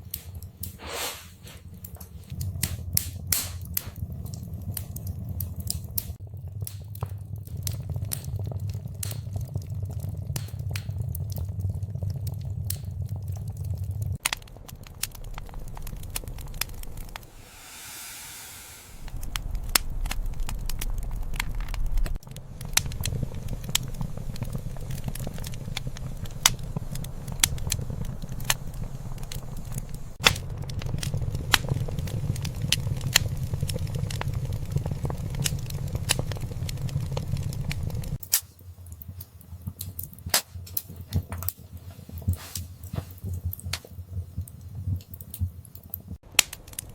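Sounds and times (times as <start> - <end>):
sharp pops and snaps: 0.0 - 17.3, 19.2 - 46.9
low rumble of burning: 0.0 - 46.9
wood fire crackling: 0.0 - 46.9
soft hiss: 17.2 - 19.1.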